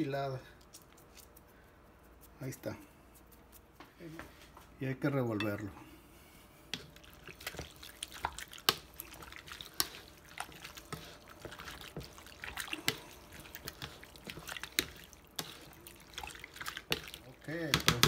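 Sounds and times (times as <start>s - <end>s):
wet sloshing and squishing: 6.5s - 18.0s.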